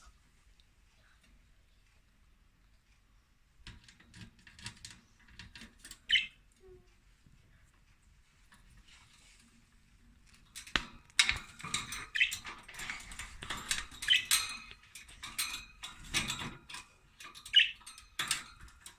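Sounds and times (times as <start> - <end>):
budgerigars chirping: 6.1 - 6.4.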